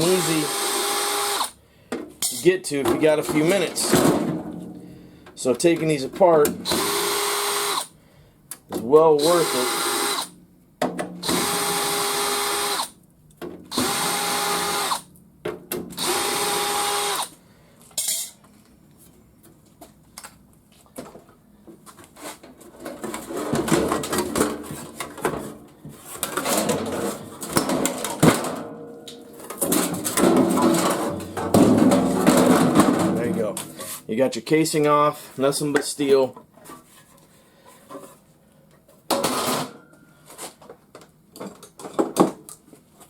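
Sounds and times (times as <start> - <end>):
power drill whining: 0.0 - 1.6, 6.6 - 7.9, 9.2 - 10.3, 11.2 - 12.9, 13.7 - 15.0, 16.0 - 17.3
metal casing clattering and knocking: 29.4 - 33.5.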